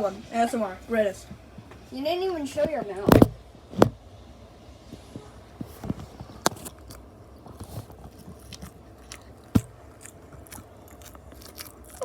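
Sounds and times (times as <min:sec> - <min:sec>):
chewing food: 0:06.2 - 0:12.0.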